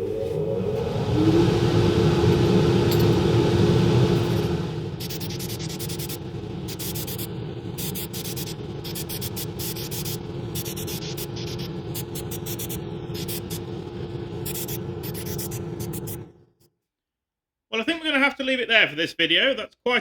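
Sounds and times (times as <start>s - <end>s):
motor humming: 0.0s - 16.3s
spray paint hissing bursts: 5.0s - 13.7s, 14.4s - 16.2s.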